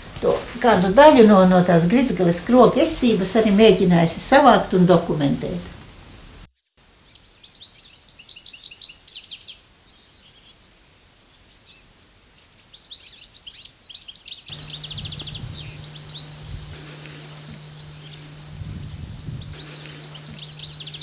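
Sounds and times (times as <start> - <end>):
background hiss: 0.0 - 12.4, 14.5 - 21.0
songbirds chirping and trilling: 7.1 - 21.0
steady low hum: 14.5 - 21.0.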